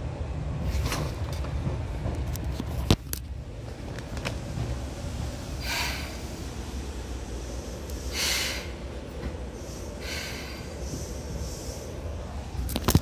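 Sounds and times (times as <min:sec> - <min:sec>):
electric train rumble: 0:00.0 - 0:13.0
short hisses: 0:08.0 - 0:08.8.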